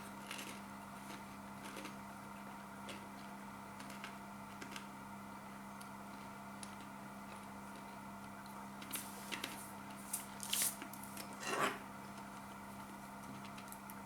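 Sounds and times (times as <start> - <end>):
crunching chips: 0.0 - 2.0
steady low hum: 0.0 - 14.0.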